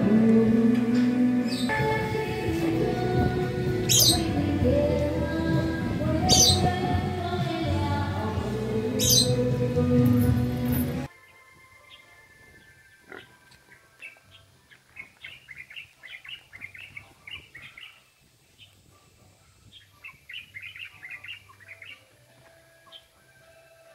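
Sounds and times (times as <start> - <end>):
small birds chirping: 3.8 - 4.7, 6.1 - 7.0, 9.0 - 9.5, 11.9 - 23.2.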